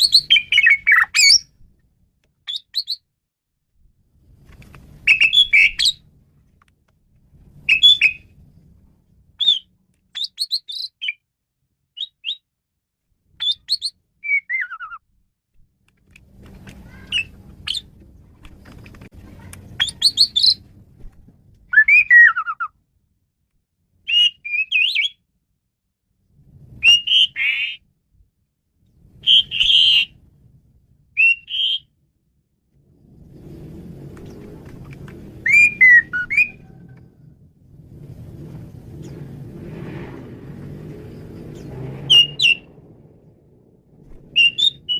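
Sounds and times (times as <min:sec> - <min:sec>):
starling singing whistles and chirps: 0:00.0 - 0:01.5, 0:02.5 - 0:03.0, 0:05.0 - 0:06.0, 0:07.7 - 0:08.3, 0:09.4 - 0:11.2, 0:12.0 - 0:12.4, 0:13.4 - 0:15.0, 0:19.8 - 0:20.6, 0:21.7 - 0:22.7, 0:24.1 - 0:25.2, 0:26.8 - 0:27.8, 0:29.2 - 0:30.2, 0:31.2 - 0:31.9, 0:35.4 - 0:36.6, 0:41.2 - 0:42.8, 0:44.3 - 0:44.9.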